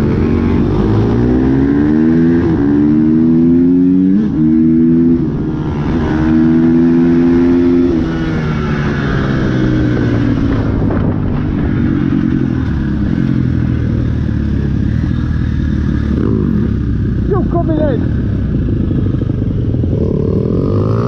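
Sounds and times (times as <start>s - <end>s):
dirt bike engine revving: 0.0s - 10.4s, 14.6s - 21.0s.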